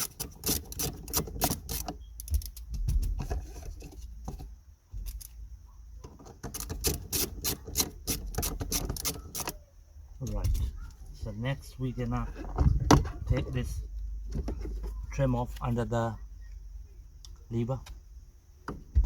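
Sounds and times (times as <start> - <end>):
ratchet wrench clicking: 0.0 - 2.7, 6.5 - 9.6.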